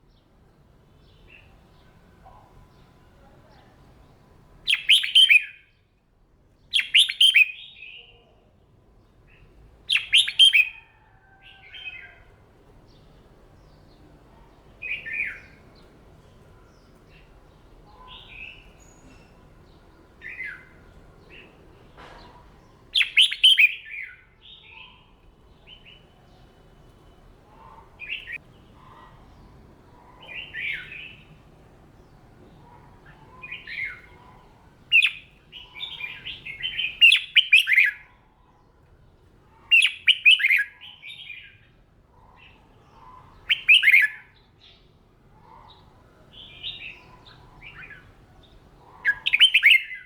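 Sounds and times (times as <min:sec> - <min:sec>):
bird singing warbling phrases: 0:04.7 - 0:05.7, 0:06.7 - 0:08.4, 0:09.3 - 0:10.8, 0:17.9 - 0:19.4, 0:22.9 - 0:26.2, 0:27.6 - 0:29.4, 0:30.0 - 0:31.4, 0:32.6 - 0:38.1, 0:39.6 - 0:41.7, 0:42.4 - 0:44.8, 0:45.8 - 0:50.0.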